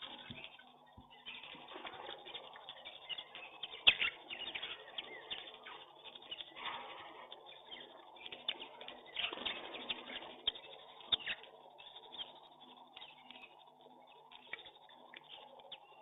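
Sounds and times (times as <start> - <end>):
small birds chirping: 0.0 - 16.0
pigeons cooing: 1.3 - 12.4.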